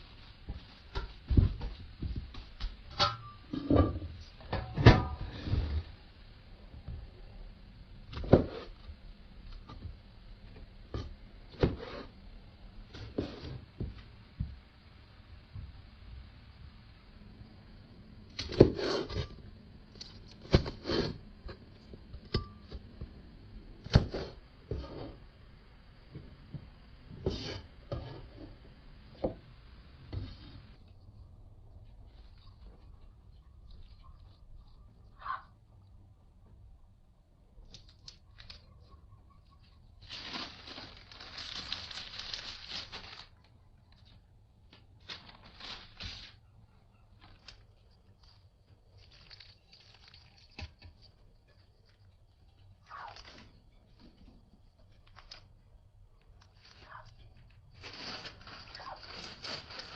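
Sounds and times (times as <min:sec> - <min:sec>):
rustling and crinkling: 0:00.0 - 0:06.0, 0:08.1 - 0:14.9, 0:30.0 - 0:35.2, 0:37.6 - 0:59.9.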